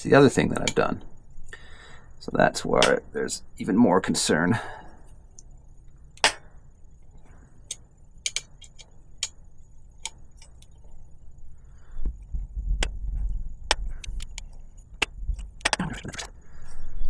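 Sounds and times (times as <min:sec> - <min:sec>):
low handling rumble: 0:11.0 - 0:17.0.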